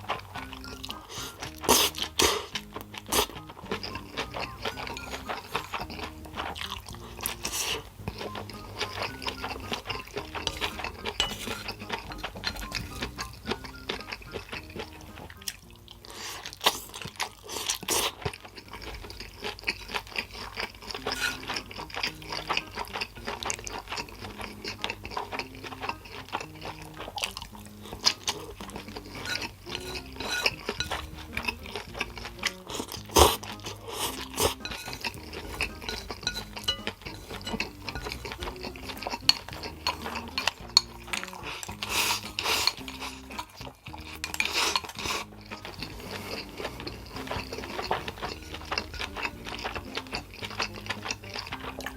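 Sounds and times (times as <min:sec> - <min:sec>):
person chewing: 0:00.0 - 0:51.9
soft music with bass line: 0:00.0 - 0:51.9
chopsticks clicking on dish: 0:00.1 - 0:15.6, 0:16.6 - 0:51.9.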